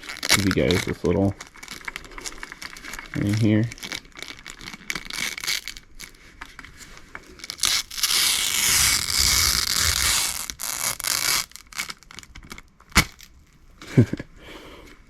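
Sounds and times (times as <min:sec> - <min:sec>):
plastic scraping: 0:00.0 - 0:13.4
plastic tearing: 0:00.0 - 0:13.6
plastic crinkling: 0:00.0 - 0:14.1.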